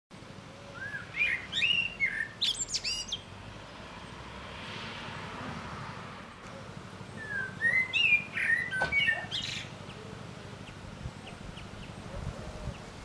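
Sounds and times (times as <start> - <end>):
songbird whistled notes: 0.8 - 3.2, 7.2 - 9.7.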